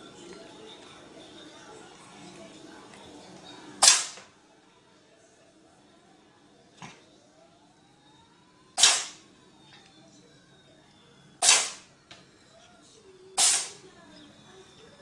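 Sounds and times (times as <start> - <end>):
hissy noise bursts: 8.8 - 9.2, 11.4 - 11.8, 13.4 - 13.8.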